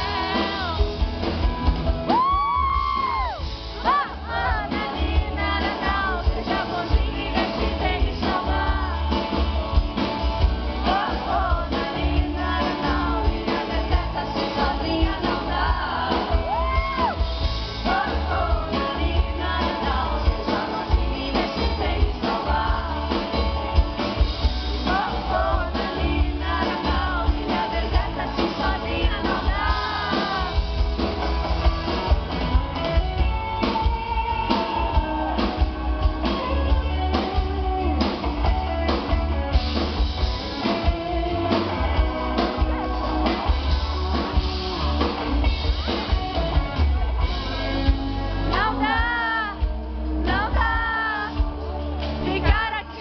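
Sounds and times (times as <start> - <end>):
woman singing: 0.0 - 1.0, 3.1 - 10.1, 10.7 - 17.1, 17.8 - 23.5, 24.7 - 30.9, 48.5 - 49.6, 50.2 - 51.5, 52.2 - 53.0
live band playing: 0.0 - 53.0.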